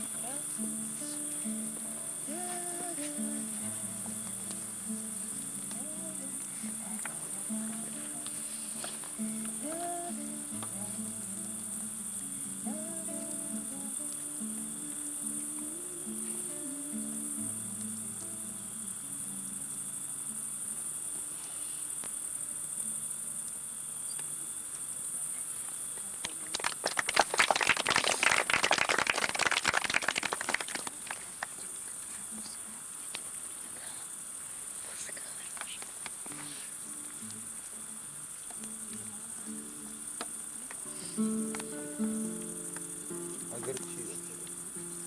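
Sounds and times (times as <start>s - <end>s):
faint guitar notes: 0.0s - 21.7s, 36.3s - 45.0s
crickets chirring: 0.0s - 45.0s
audience clapping: 26.2s - 31.6s.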